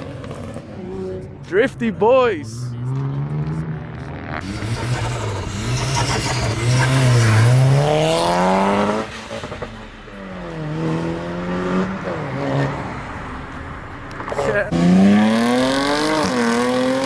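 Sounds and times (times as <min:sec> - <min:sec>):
car engine revving hard: 0:02.8 - 0:12.8, 0:14.6 - 0:17.0.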